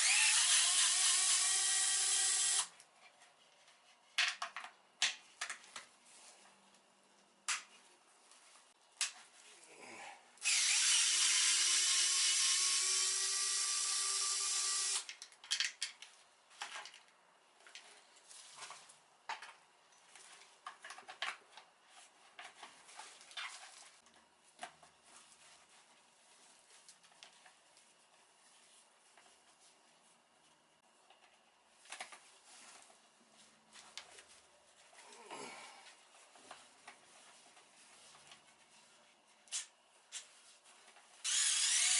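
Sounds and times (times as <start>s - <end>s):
electric drill-driver running: 0.0s - 2.7s, 10.4s - 15.1s, 41.2s - 41.9s.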